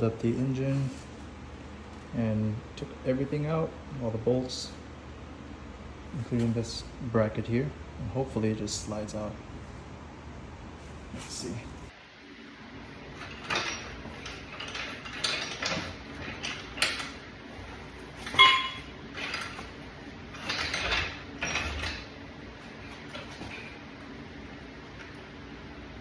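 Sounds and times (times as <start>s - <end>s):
metal scrapes and clanks: 13.0s - 23.8s.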